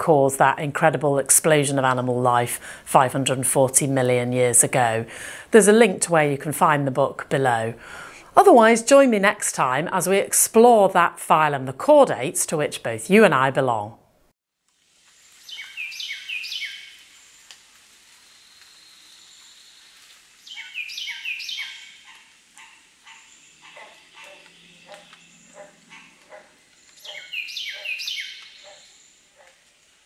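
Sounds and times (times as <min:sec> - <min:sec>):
soft bird chirps: 0:15.3 - 0:17.4, 0:18.5 - 0:22.2, 0:26.8 - 0:29.2
songbird singing falling notes: 0:15.4 - 0:17.0, 0:20.4 - 0:22.0, 0:26.8 - 0:28.8.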